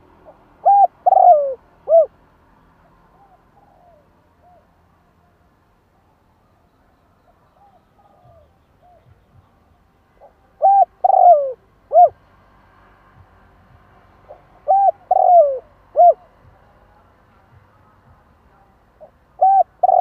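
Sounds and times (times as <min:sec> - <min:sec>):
dove cooing: 0:00.0 - 0:02.2, 0:03.1 - 0:04.7, 0:07.6 - 0:09.4, 0:10.2 - 0:12.2, 0:14.3 - 0:16.4, 0:19.0 - 0:20.0.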